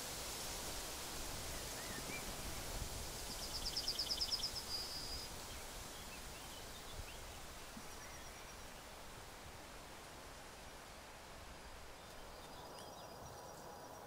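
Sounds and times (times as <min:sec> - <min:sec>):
songbird singing: 0:01.5 - 0:09.0, 0:11.6 - 0:14.0
faint bird chirps: 0:03.2 - 0:08.8.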